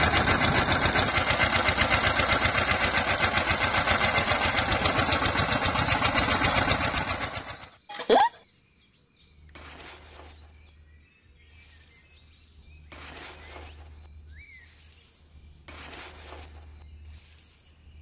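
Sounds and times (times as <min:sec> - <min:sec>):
bird chirping: 0:07.4 - 0:18.0
metal scoop scooping soil and gravel: 0:09.5 - 0:10.7, 0:11.5 - 0:18.0.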